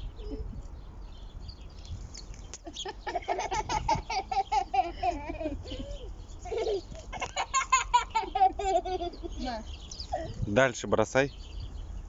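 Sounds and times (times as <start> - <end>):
birds chirping faintly: 0.0 - 12.0
small child giggling: 2.6 - 10.4.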